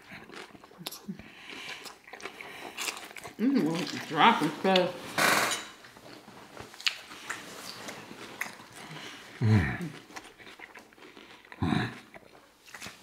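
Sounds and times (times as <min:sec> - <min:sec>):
chewing and mouth clicks: 0:00.0 - 0:04.8, 0:06.0 - 0:13.0
food crunch: 0:00.0 - 0:13.0
person humming: 0:09.4 - 0:10.0, 0:11.6 - 0:12.0.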